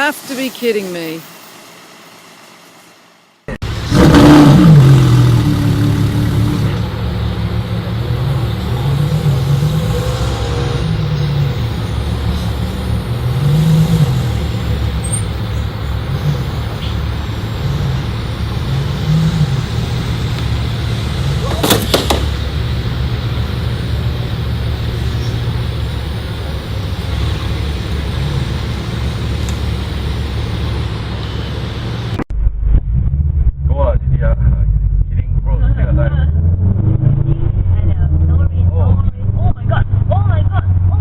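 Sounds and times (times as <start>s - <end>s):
vehicle engine and road rumble: 0.0s - 41.0s
sharp knock: 21.5s - 22.4s.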